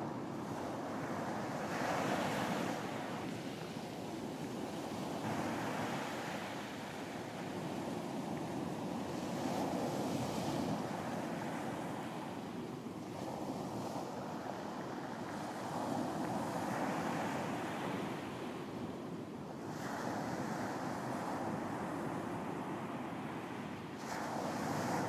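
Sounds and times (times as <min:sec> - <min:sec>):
waves breaking on beach: 0:19.6 - 0:25.0.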